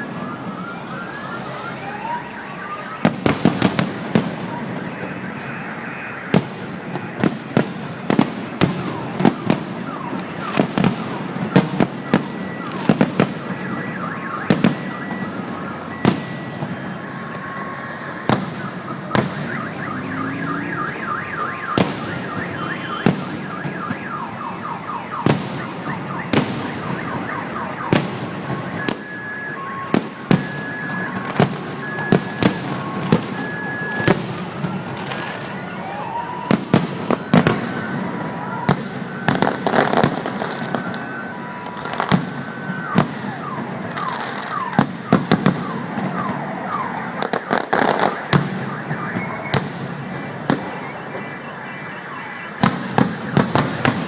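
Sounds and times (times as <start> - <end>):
fireworks bangs: 2.2 - 54.0
beeping and warbling alarm tones: 11.9 - 34.1, 50.7 - 53.4.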